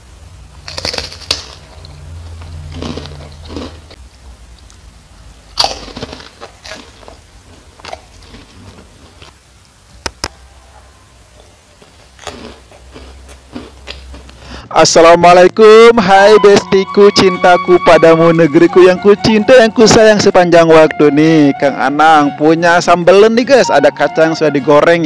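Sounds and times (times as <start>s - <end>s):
chewing soft food: 0.6s - 4.8s, 5.6s - 9.4s, 11.4s - 14.5s
crackers crunching: 0.6s - 4.9s, 5.5s - 10.4s, 11.4s - 14.6s.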